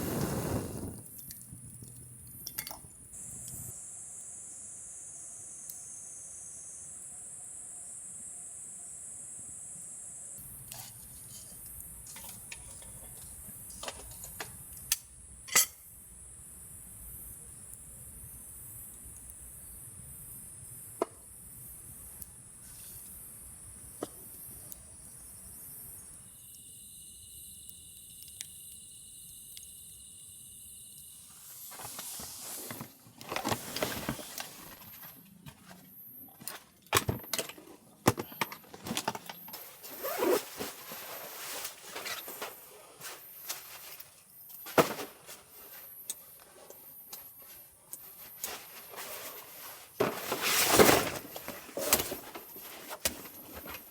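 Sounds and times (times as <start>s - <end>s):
insects chirring: 0.0s - 37.5s, 38.1s - 53.9s
handling clicks and rustles: 31.8s - 45.5s.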